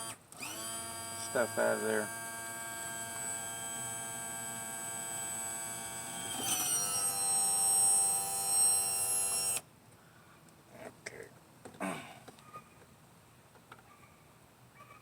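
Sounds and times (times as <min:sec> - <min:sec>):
electric pump motor whining: 0:00.0 - 0:09.6.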